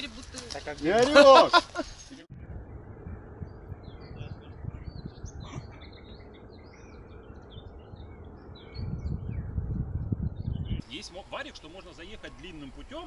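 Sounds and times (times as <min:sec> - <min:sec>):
small birds chirping: 0:01.8 - 0:13.0
low rumble: 0:02.2 - 0:10.9.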